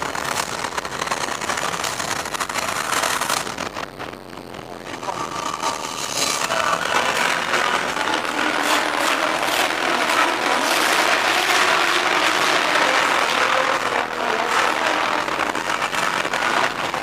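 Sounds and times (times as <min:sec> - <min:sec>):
crowd noise in hall: 0:00.0 - 0:17.0
car engine running: 0:05.6 - 0:17.0.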